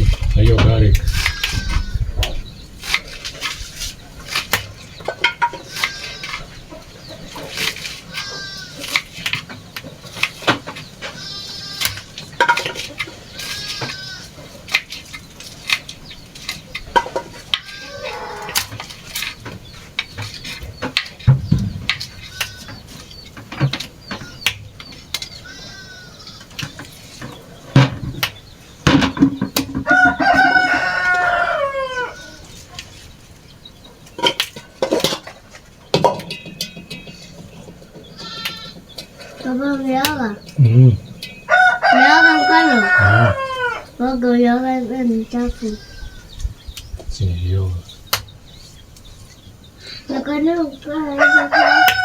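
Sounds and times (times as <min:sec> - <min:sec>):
chickens calling: 0:00.0 - 0:52.0
rooster crowing: 0:17.7 - 0:18.7, 0:29.8 - 0:32.5, 0:41.5 - 0:44.0, 0:51.1 - 0:52.0.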